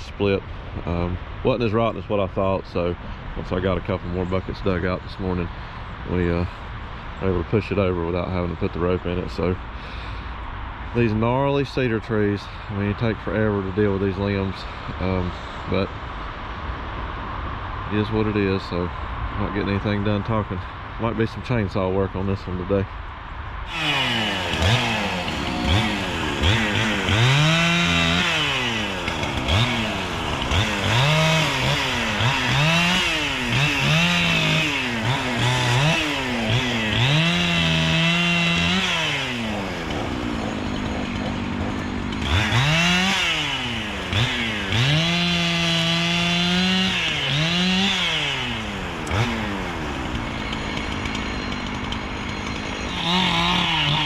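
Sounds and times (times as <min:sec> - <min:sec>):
chainsaw revving and cutting: 0:23.7 - 0:54.0.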